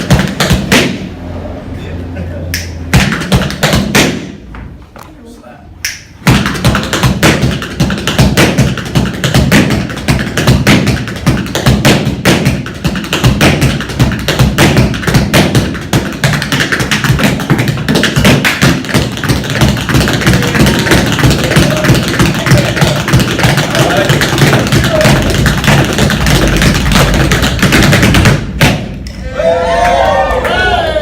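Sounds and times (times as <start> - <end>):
tap shoes striking floor: 6.3 - 28.9.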